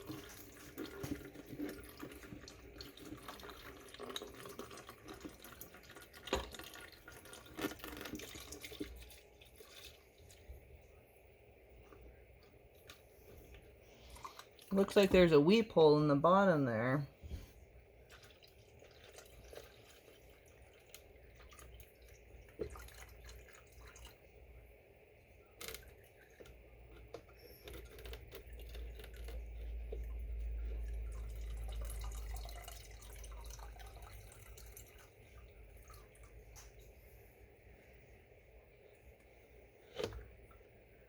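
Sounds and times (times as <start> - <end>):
liquid dripping into container: 0.0 - 11.0, 17.8 - 37.2.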